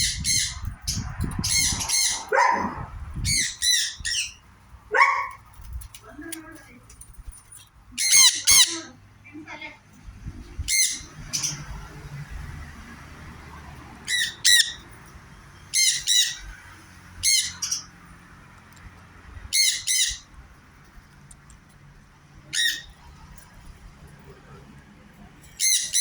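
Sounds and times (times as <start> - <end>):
parrot screeching: 1.4 - 4.4, 8.0 - 8.9, 14.1 - 14.8, 15.7 - 16.4, 17.2 - 17.9, 19.5 - 20.3, 22.5 - 23.0, 25.6 - 26.0.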